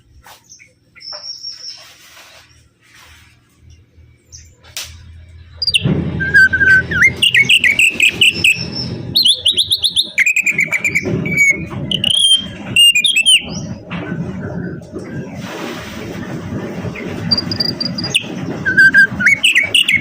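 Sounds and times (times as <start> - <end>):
songbird singing: 0.4 - 1.9, 5.4 - 13.8, 17.3 - 20.0
choppy low rumble: 3.7 - 20.0.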